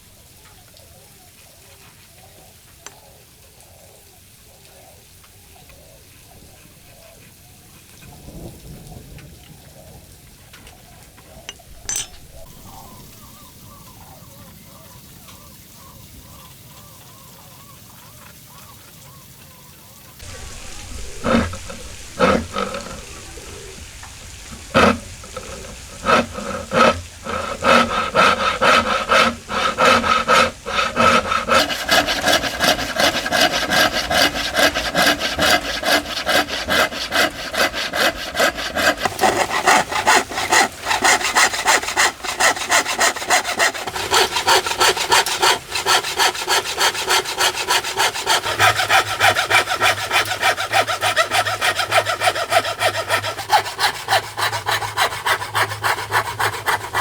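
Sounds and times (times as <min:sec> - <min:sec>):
hand saw cutting wood: 0:20.2 - 0:57.0.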